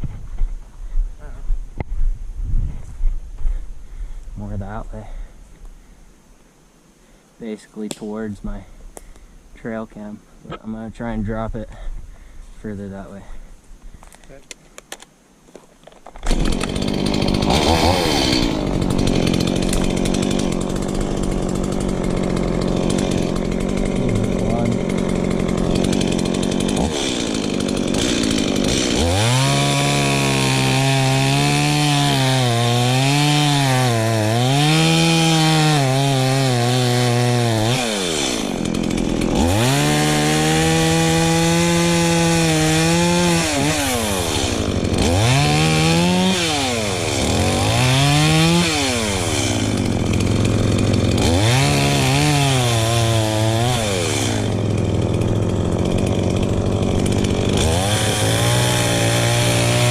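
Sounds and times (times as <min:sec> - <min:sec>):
chainsaw cutting into tree: 0:16.1 - 0:59.9.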